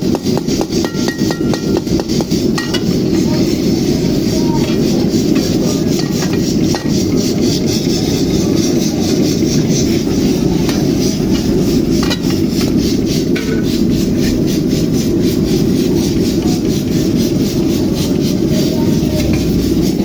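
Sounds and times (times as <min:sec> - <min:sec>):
spatula scraping a pan: 0:00.0 - 0:20.0.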